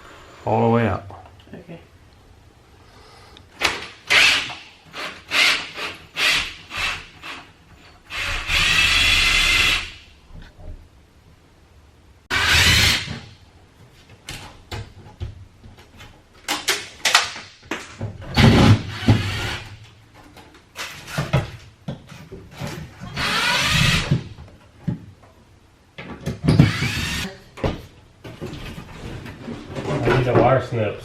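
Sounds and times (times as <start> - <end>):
cordless drill bursts: 4.1 - 7.4, 8.1 - 10.0, 12.3 - 13.1, 23.2 - 24.1, 26.6 - 27.3.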